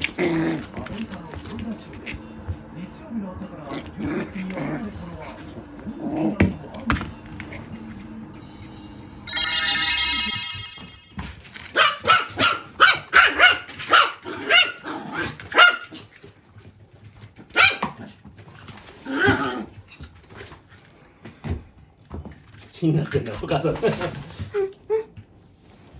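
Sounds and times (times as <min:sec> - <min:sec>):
high steady tone: 0:08.7 - 0:11.4
puppy barking: 0:11.8 - 0:14.8, 0:15.5 - 0:16.0, 0:17.6 - 0:18.0.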